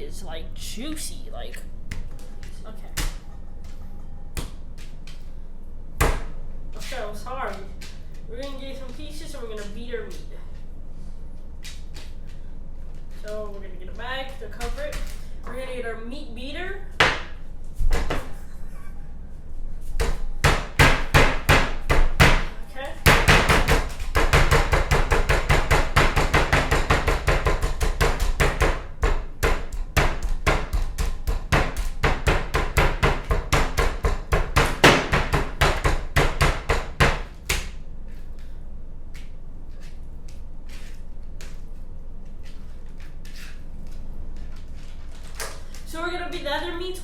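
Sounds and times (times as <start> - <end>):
meat mallet pounding: 20.0 - 37.7.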